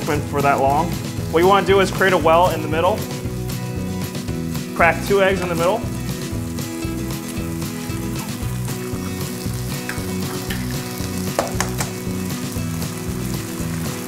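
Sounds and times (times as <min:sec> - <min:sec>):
food sizzling in hot oil: 0:00.0 - 0:14.0
soft background music: 0:00.0 - 0:14.0
eggs cracking: 0:08.2 - 0:12.1
sharp tap: 0:11.4 - 0:12.0.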